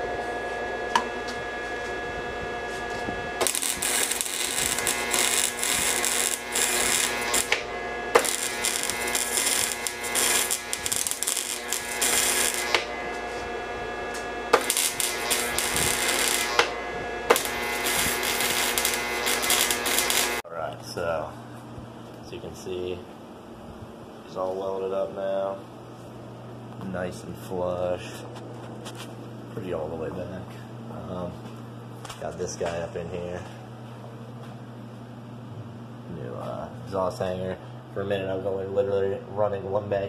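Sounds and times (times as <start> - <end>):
steady hum: 0.0 - 40.0
welding arc crackling: 3.4 - 20.4.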